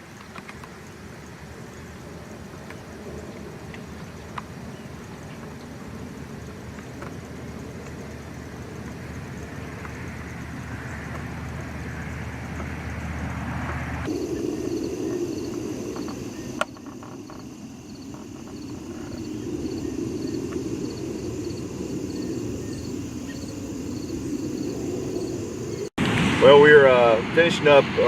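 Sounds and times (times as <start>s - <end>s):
insects chirping: 0.0s - 26.0s
low engine-like hum: 0.6s - 16.8s.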